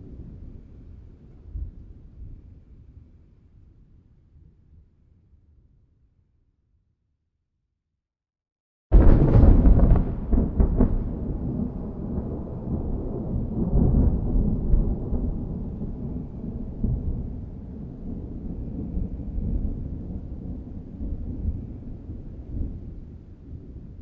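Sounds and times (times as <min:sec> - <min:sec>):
thunder cracks: 0:08.9 - 0:21.5
rolling thunder rumble: 0:08.9 - 0:24.0.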